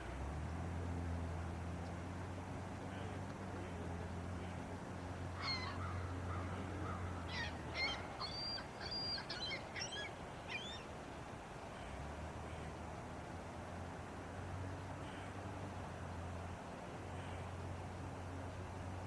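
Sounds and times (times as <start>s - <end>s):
bird chirping and whistling: 7.8s - 10.8s.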